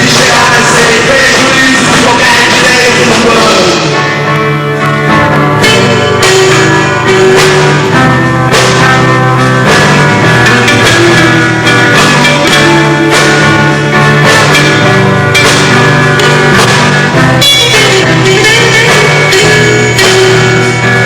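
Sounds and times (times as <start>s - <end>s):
rock band playing live: 0.0s - 21.0s.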